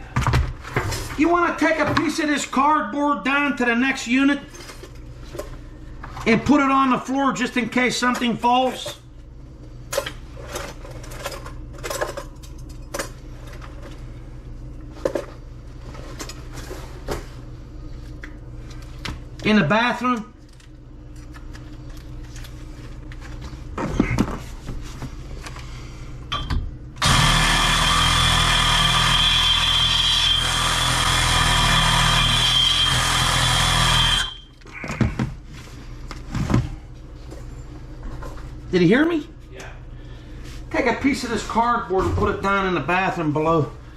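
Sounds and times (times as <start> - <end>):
steady low hum: 0.0 - 29.2, 32.9 - 43.9
power tool motor whining: 27.0 - 34.4.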